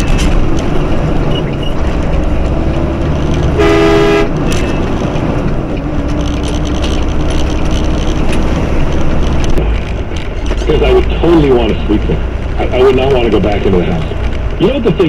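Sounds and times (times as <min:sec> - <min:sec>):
truck engine and road rumble: 0:00.0 - 0:15.0
vehicle horn: 0:03.5 - 0:04.4.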